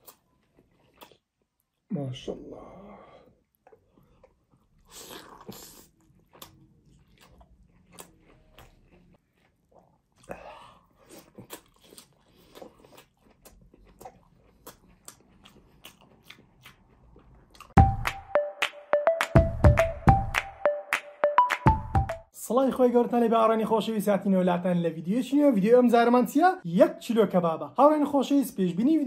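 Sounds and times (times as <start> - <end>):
person biting and chewing: 0.0 - 1.6, 3.6 - 17.8.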